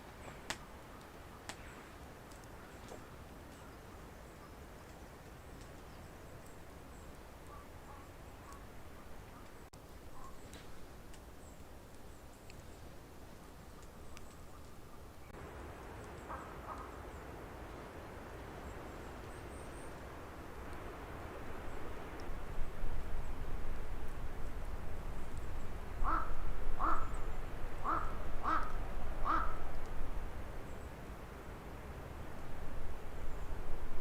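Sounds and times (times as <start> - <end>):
crow cawing: 26.0 - 27.1, 27.8 - 29.6.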